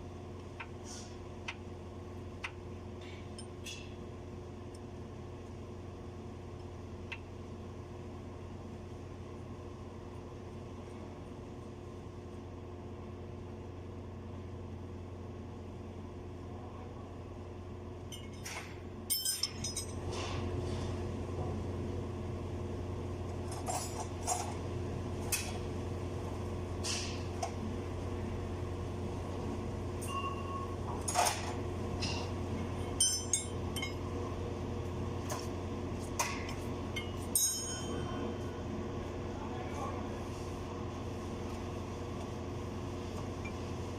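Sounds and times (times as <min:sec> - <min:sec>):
low machine hum: 0:00.0 - 0:43.9
metal tools clinking: 0:19.1 - 0:20.0.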